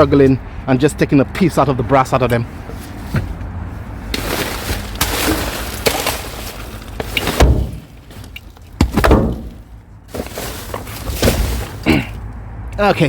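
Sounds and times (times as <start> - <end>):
junk clattering and rattling: 4.1 - 12.3.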